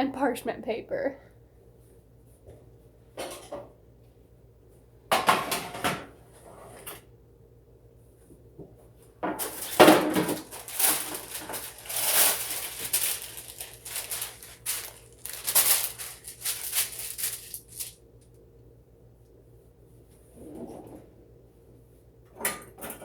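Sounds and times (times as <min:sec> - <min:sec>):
paper crinkling and tearing: 0:09.4 - 0:18.0.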